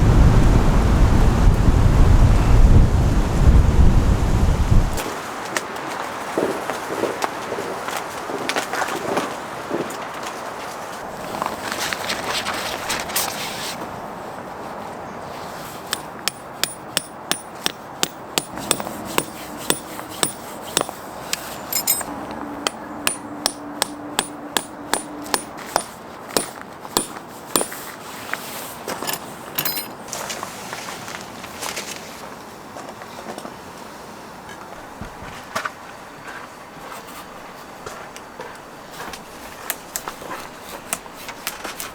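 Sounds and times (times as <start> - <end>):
scattered knocks: 16.0 - 20.9, 22.7 - 27.8.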